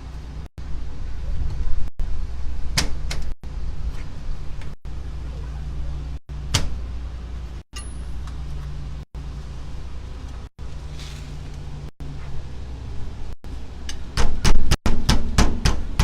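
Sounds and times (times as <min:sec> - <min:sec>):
low rumble: 0:00.0 - 0:13.8
knocks on window frame: 0:14.2 - 0:16.0.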